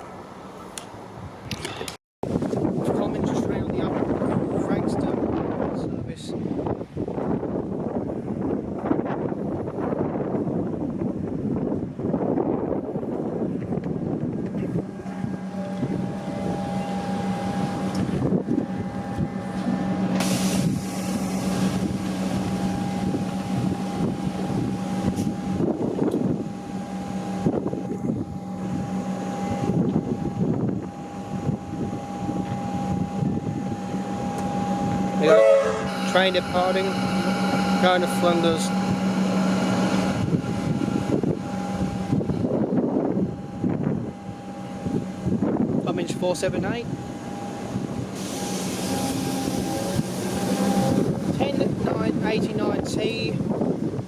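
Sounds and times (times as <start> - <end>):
electric train humming: 2.3 - 54.0.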